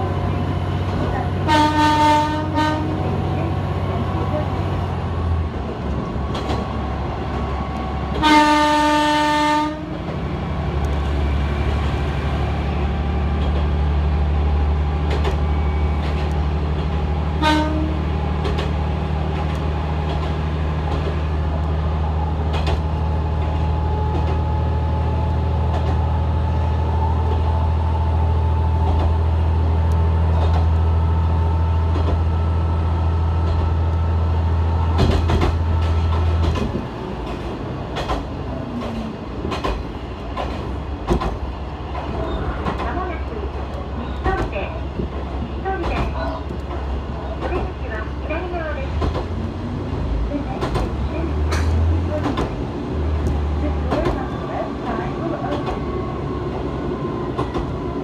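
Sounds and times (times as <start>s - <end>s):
rail joint clicks: 0.0s - 58.0s
train engine drone: 0.0s - 58.0s
train horn: 1.4s - 3.2s, 8.2s - 10.0s, 17.4s - 18.0s.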